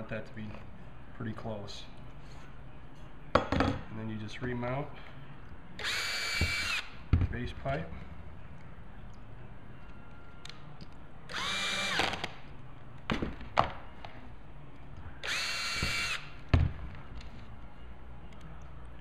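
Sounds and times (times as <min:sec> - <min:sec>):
power drill driving screws: 0:05.8 - 0:06.9, 0:11.3 - 0:12.3, 0:15.2 - 0:16.2.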